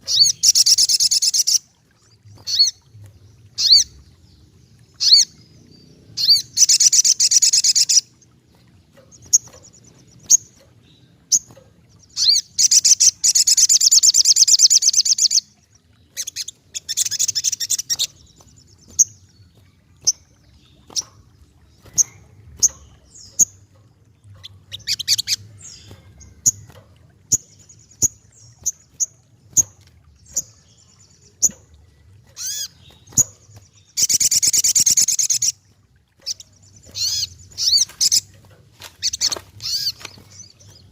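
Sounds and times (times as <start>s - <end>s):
bird sharp chips: 36.2s - 40.9s.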